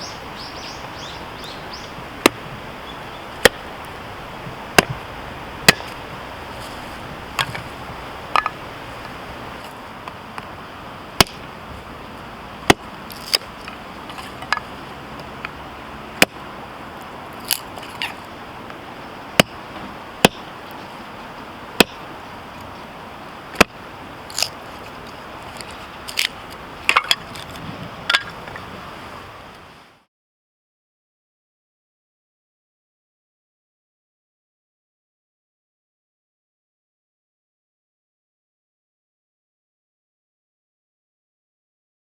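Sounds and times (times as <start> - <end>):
steady hiss: 0.0 - 30.1
firewood cracking: 17.4 - 18.3, 23.6 - 27.6.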